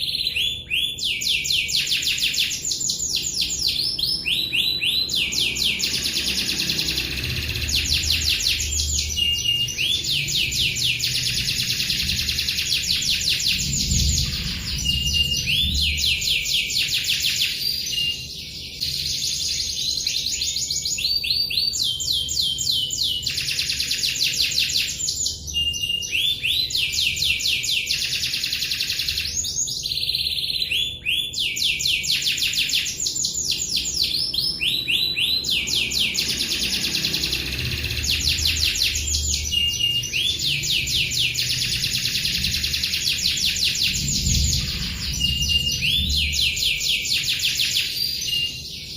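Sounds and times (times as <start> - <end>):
canary singing trills: 0.0 - 48.9.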